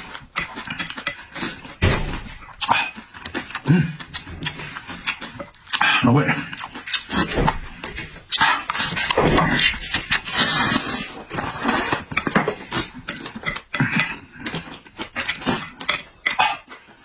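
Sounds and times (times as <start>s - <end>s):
wet chewing and smacking: 0.0s - 17.0s
slurping noodles: 8.2s - 17.0s.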